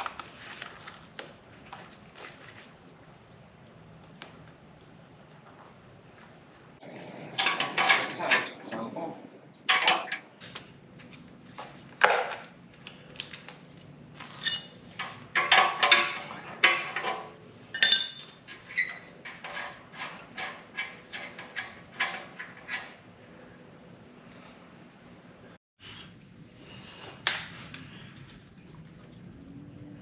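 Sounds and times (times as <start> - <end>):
metallic clinks and knocks: 14.3 - 23.0
ringing metal clink: 17.7 - 18.5.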